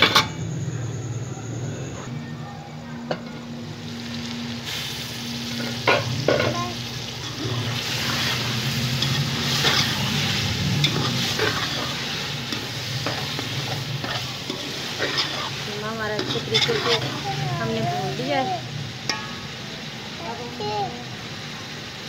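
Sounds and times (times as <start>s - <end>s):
mince sizzling in a pot: 2.0s - 22.0s
metal spoon stirring and scraping: 7.1s - 17.4s.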